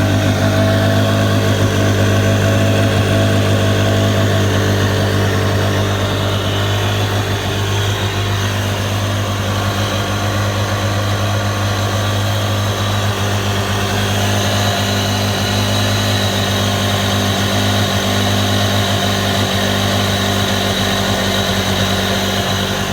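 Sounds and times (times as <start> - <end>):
high engine whine: 0.0 - 22.9
jet ski engine running: 0.0 - 22.9.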